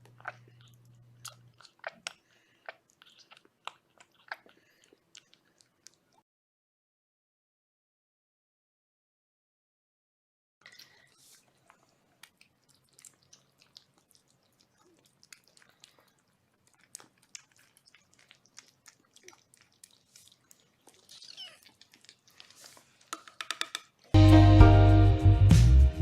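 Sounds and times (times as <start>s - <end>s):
kittens chewing and crunching food: 0.0s - 6.2s, 10.6s - 24.2s.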